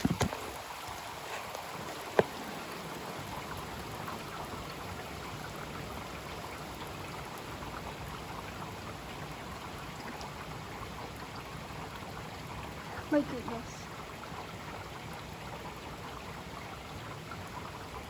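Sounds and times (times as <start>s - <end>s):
heavy rain falling: 12.6s - 14.0s.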